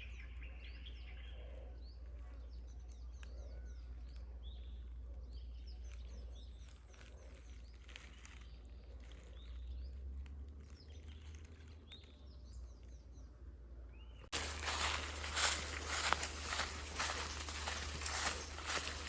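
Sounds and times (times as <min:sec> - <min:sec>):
birds chirping: 0:10.6 - 0:19.0.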